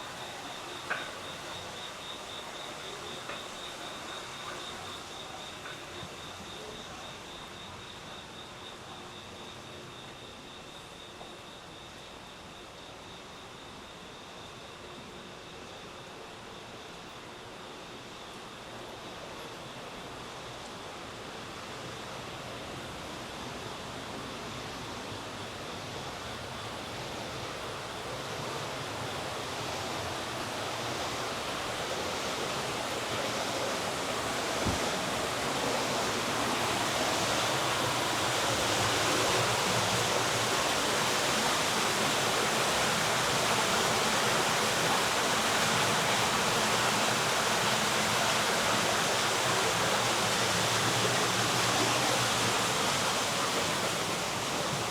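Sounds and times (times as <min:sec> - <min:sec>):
flowing water rushing: 0:00.0 - 0:06.0, 0:23.5 - 0:54.9.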